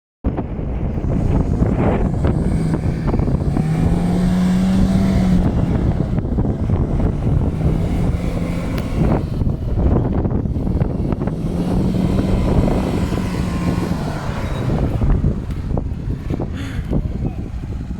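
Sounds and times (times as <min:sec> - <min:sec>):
wind buffeting microphone: 0:00.2 - 0:17.9
car engine revving: 0:00.4 - 0:17.9.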